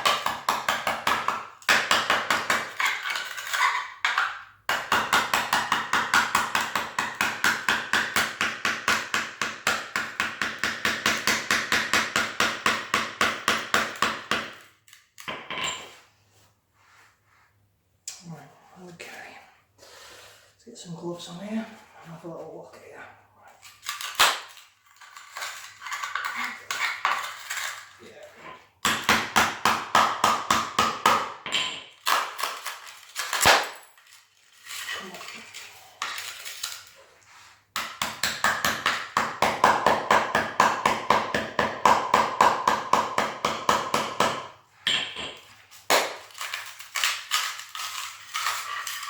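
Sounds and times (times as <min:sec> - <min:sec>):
hand tool chipping ceramic tile: 0:00.0 - 0:15.9, 0:23.8 - 0:33.9, 0:34.6 - 0:37.0, 0:37.7 - 0:49.0.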